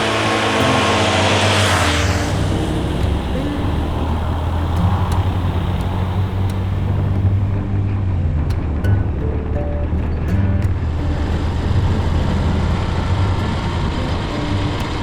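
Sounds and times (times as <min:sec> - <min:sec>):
hiss: 0:00.0 - 0:07.4
motorcycle engine running: 0:00.0 - 0:15.0.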